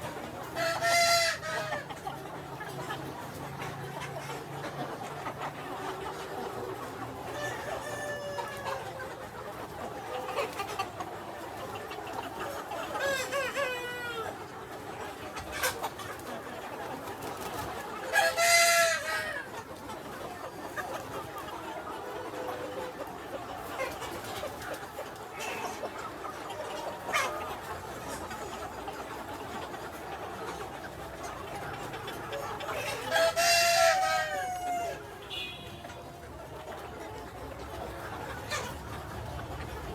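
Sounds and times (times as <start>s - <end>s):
chickens clucking: 0.0s - 39.9s
outdoor background noise: 0.0s - 39.9s.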